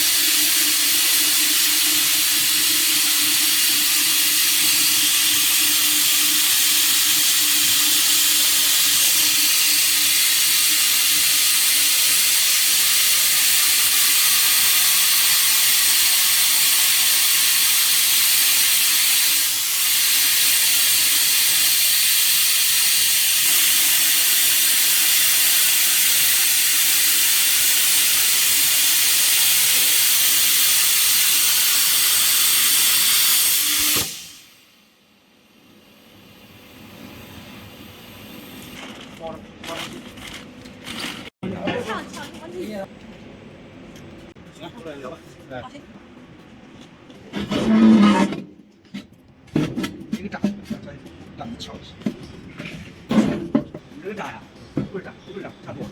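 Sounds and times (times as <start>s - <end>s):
plasma cutting torch hissing: 0.0s - 34.8s.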